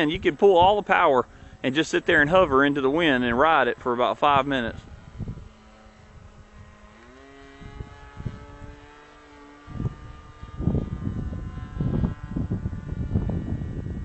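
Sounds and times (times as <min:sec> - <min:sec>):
model airplane motor whine: 0:00.0 - 0:14.0
wind buffeting microphone: 0:00.0 - 0:14.0.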